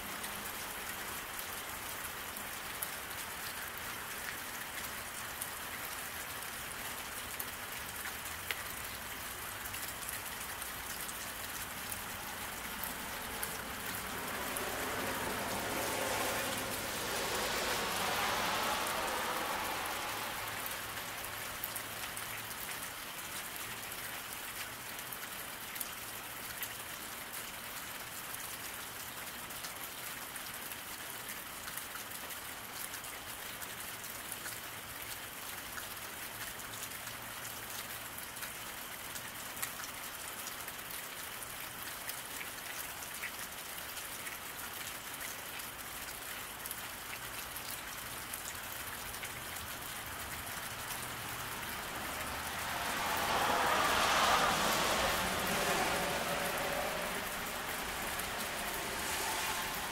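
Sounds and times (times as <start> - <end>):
car tyres hissing on wet road: 0.0 - 23.0, 47.0 - 59.9
rain falling on a road: 0.0 - 59.9.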